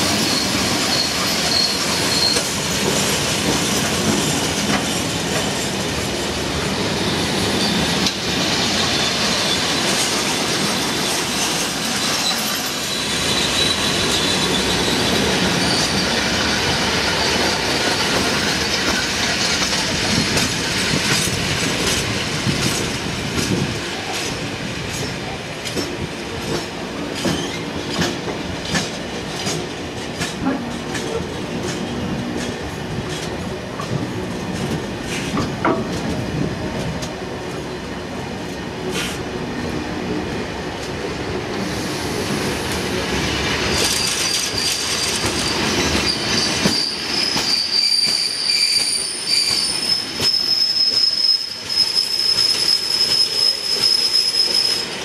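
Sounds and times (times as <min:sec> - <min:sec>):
train wheels rumbling on rail: 0:00.0 - 0:55.0
thin wheel squeal: 0:00.2 - 0:02.5, 0:43.9 - 0:54.9.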